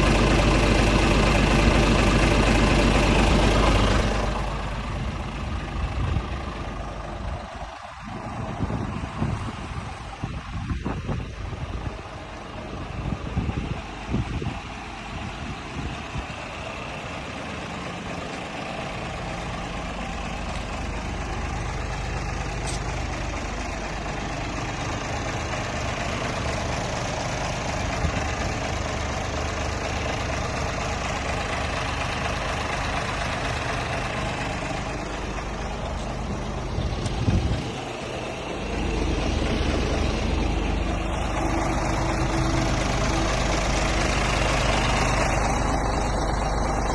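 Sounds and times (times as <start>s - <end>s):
diesel truck engine idling: 0.0s - 46.9s
engine knocks: 0.0s - 46.9s.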